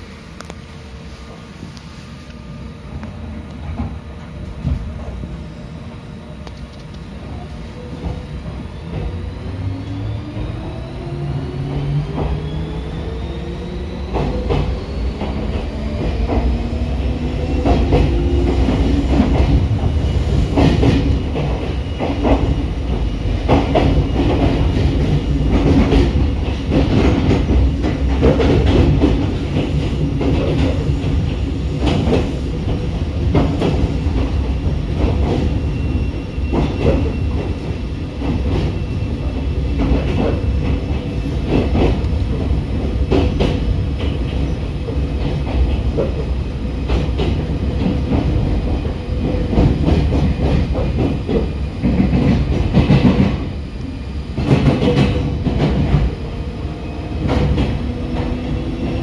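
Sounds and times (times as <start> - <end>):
electric train rumbling on rails: 0.0 - 59.0.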